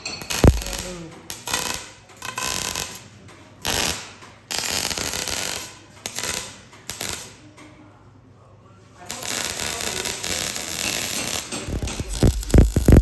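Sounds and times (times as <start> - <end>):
welder crackling hiss: 0.3 - 3.0, 9.1 - 13.0.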